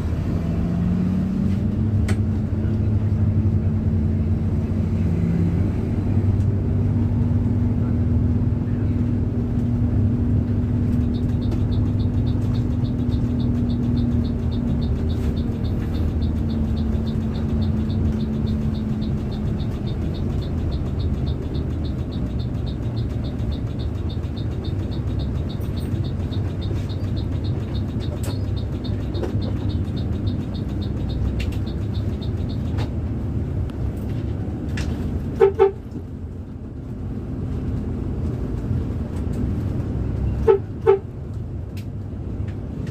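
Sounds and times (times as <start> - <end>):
bus engine running: 0.0 - 42.9
fast high ticking: 11.0 - 32.8
horn toots: 35.3 - 35.9, 40.3 - 41.1.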